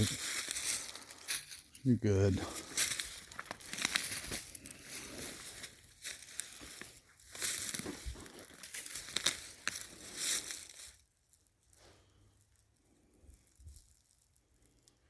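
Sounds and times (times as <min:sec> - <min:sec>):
footsteps crunching through dry leaves: 0:00.0 - 0:11.0.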